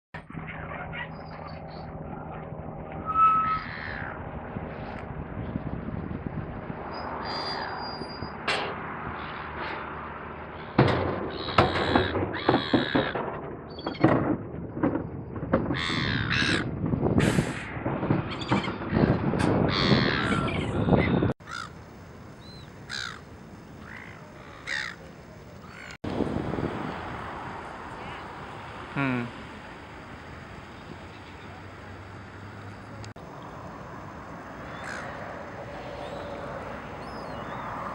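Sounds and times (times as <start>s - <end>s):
gulls squawking: 0.3s - 4.3s, 10.6s - 13.2s, 15.8s - 16.7s, 18.3s - 21.7s, 22.4s - 26.0s, 27.8s - 29.6s, 34.6s - 37.9s.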